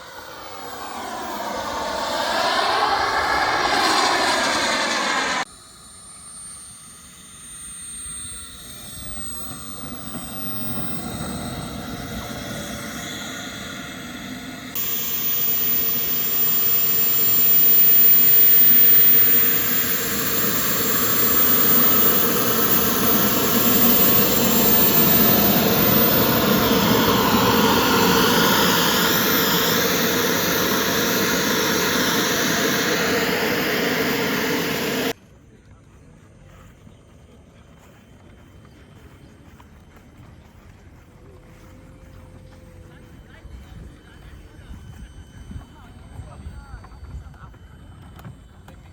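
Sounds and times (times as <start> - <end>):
model jet turbine engine: 0.0 - 35.2, 40.6 - 48.9.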